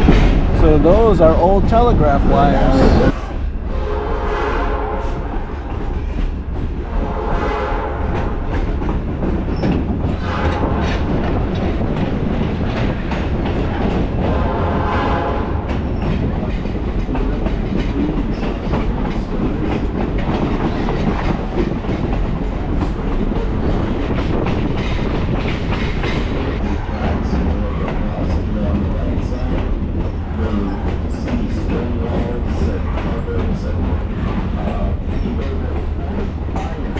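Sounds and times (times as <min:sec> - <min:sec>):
railroad car rumbling: 0:00.0 - 0:36.9
wheels clacking over rail joints: 0:05.3 - 0:36.9.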